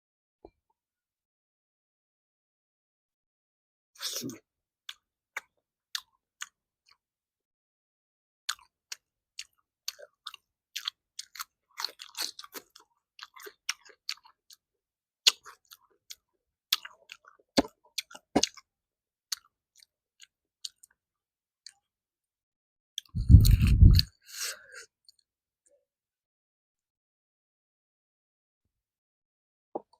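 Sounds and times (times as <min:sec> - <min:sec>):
close chewing and mouth clicks: 0:04.9 - 0:07.0, 0:08.5 - 0:18.7, 0:19.3 - 0:21.0, 0:23.0 - 0:24.2.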